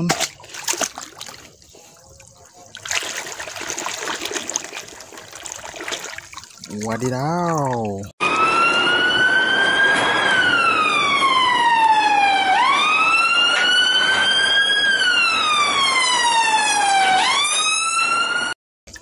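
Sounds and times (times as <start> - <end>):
fire engine siren wailing: 8.2 - 18.6.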